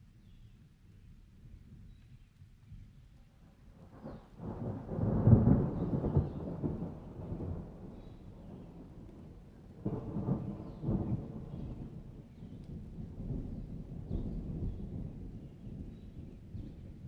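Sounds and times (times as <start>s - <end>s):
steady rain: 3.5s - 17.0s
thunder rumbling: 4.0s - 17.0s.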